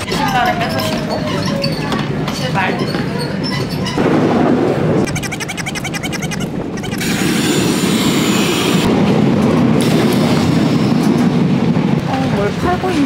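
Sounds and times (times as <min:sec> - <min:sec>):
train wheels rumbling and rattling: 0:06.5 - 0:13.0.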